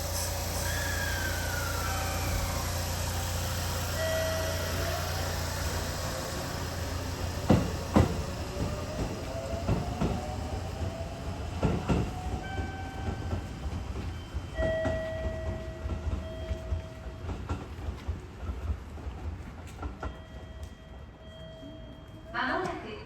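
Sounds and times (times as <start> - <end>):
electric train motor whine: 0.0 - 11.6
train rumble: 0.0 - 23.0
wheels clacking over rail joints: 1.4 - 10.4, 11.5 - 20.2.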